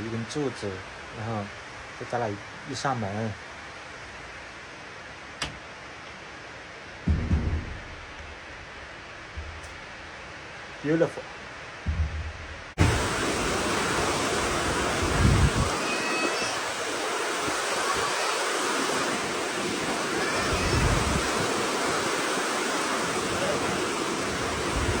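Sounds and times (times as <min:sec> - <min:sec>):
heavy rain falling: 0:04.8 - 0:25.0
wind buffeting microphone: 0:11.8 - 0:25.0.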